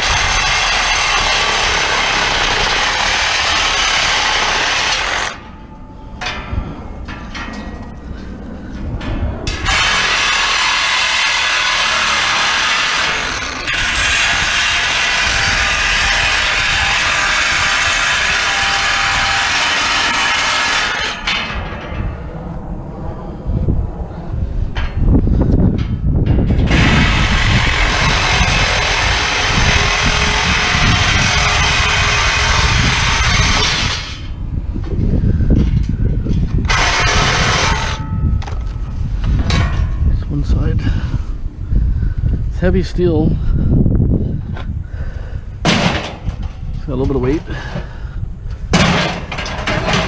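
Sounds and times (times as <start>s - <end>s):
power tool grinding metal: 0.0s - 5.4s, 9.5s - 21.3s, 26.6s - 34.3s, 36.6s - 38.0s.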